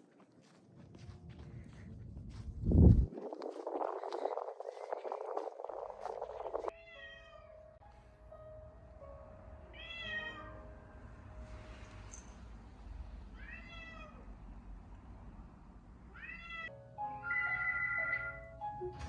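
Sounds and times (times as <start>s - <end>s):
cat meowing: 9.8s - 10.5s, 13.4s - 14.2s, 16.1s - 18.5s.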